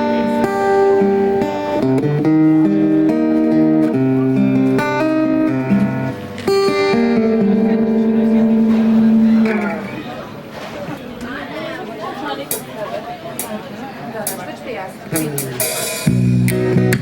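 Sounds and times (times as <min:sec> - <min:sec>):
acoustic guitar chords: 0:00.0 - 0:10.7, 0:15.2 - 0:17.0.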